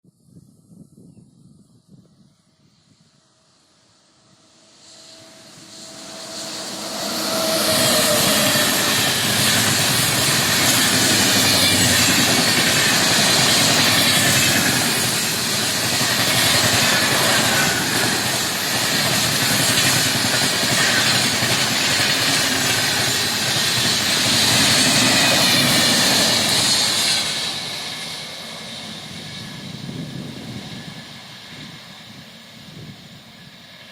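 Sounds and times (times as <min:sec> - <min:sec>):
train passing at high speed: 0:02.4 - 0:33.9.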